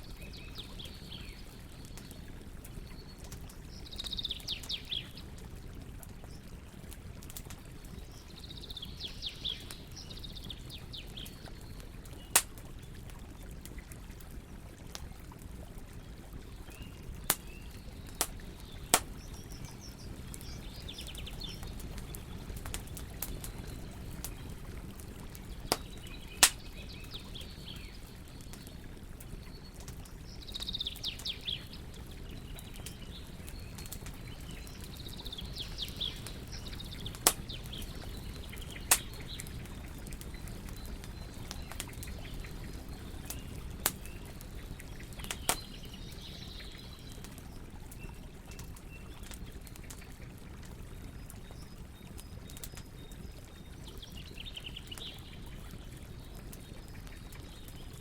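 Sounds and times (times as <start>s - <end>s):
wood fire crackling: 0.0s - 58.0s
birds chirping: 0.2s - 5.2s
loud fire pops: 25.7s - 26.6s.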